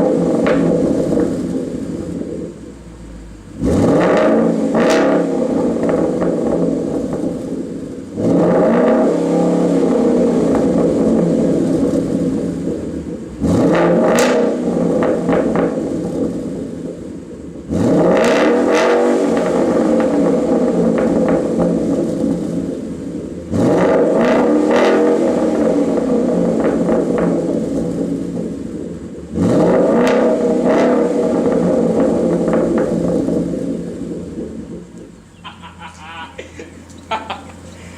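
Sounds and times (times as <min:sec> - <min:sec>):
car engine revving: 0:00.0 - 0:37.9.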